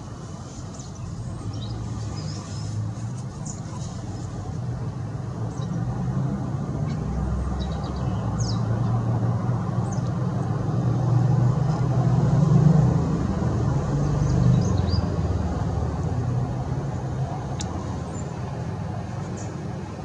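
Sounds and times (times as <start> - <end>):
small birds chirping: 0.4 - 6.0, 6.7 - 10.8, 14.1 - 15.3, 19.2 - 19.7.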